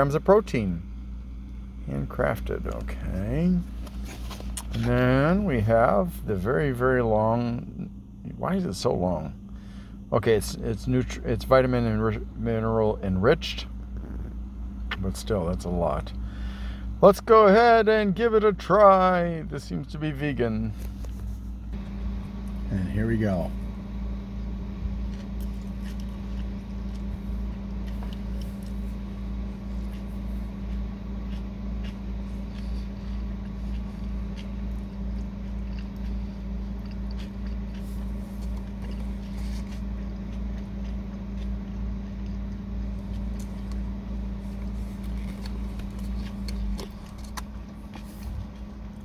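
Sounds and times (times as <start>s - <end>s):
car engine idling: 0.0s - 49.0s
person chewing food: 23.5s - 49.0s.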